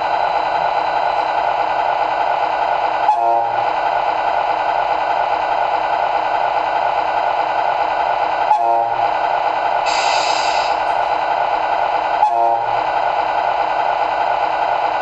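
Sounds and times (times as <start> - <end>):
simulated truck engine: 0.0 - 15.0
truck horn toot: 3.1 - 3.5, 8.5 - 9.0, 12.2 - 12.7
air hiss: 9.9 - 10.9.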